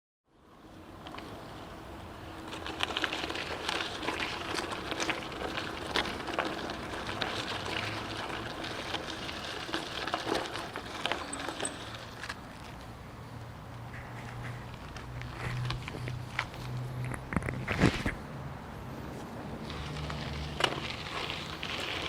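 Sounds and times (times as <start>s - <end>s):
bicycle tyre and wind noise: 0.4s - 22.0s
bicycle rattles and clicks: 0.6s - 18.3s, 19.1s - 22.0s.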